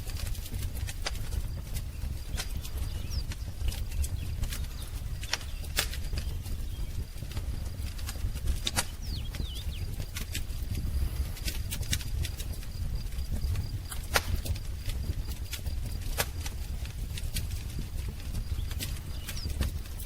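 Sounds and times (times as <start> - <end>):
steady low rumble: 0.0 - 20.0
wood fire crackling and popping: 0.0 - 20.0
bird chirps: 1.9 - 7.1, 8.8 - 10.0, 18.5 - 19.8.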